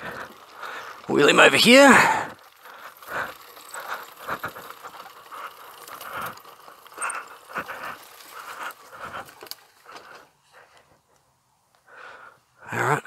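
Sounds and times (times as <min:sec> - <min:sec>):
bike pushed over rough ground: 0:00.0 - 0:11.1.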